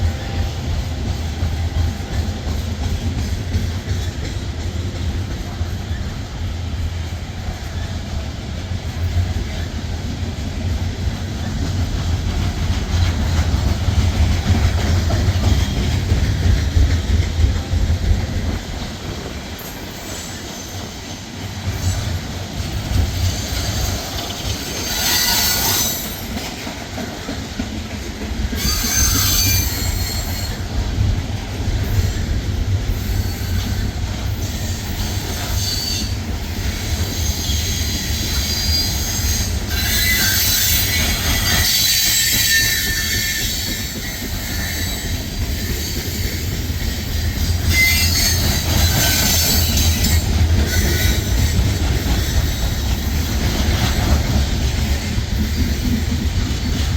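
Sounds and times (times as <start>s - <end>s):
train wheels squealing: 0.0s - 8.3s, 19.2s - 27.4s, 28.5s - 56.9s
train wheels rumbling on rails: 0.0s - 56.9s.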